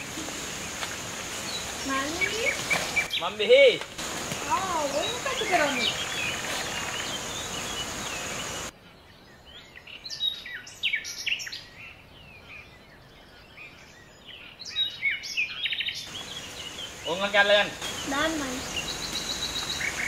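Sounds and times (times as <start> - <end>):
steady hiss: 0.0 - 8.7, 16.0 - 20.0
birds chirping and whistling: 0.0 - 20.0.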